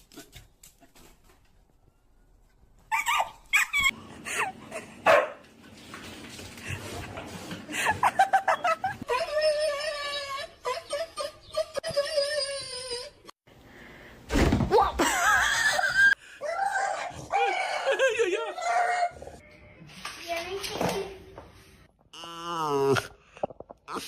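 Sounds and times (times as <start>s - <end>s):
dog barking and yipping: 5.0s - 5.4s.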